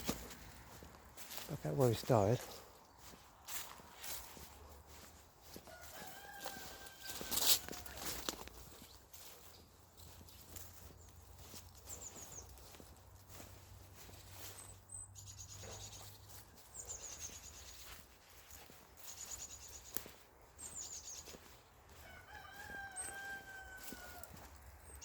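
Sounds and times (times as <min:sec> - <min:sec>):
songbirds trilling: 0:00.0 - 0:25.0
rooster crowing: 0:05.4 - 0:08.4, 0:21.9 - 0:24.6.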